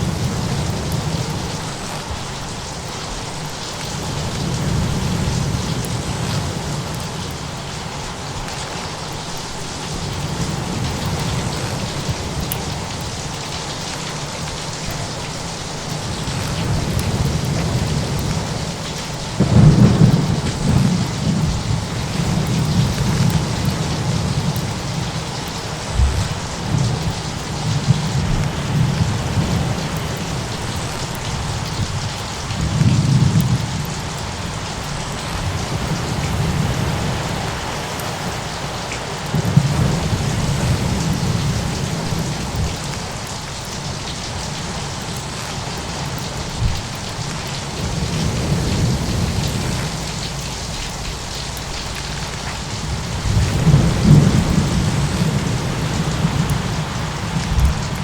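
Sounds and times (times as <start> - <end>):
steady rain: 0.0 - 58.0
rolling thunder: 15.9 - 38.6, 39.2 - 42.9, 47.8 - 58.0
thunderclap: 16.0 - 34.1, 52.2 - 58.0.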